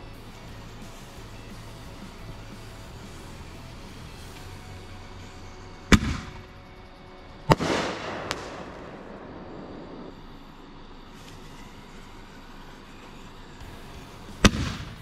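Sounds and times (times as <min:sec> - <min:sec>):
shell bursting bang: 0:05.9 - 0:06.5, 0:07.5 - 0:10.2, 0:14.4 - 0:15.0.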